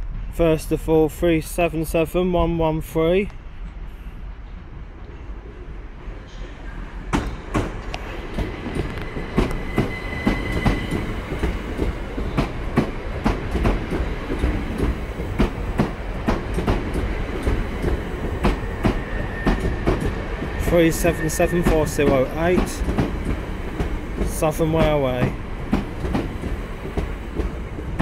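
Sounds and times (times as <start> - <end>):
train wheels rumbling and clicking: 7.0 - 28.0.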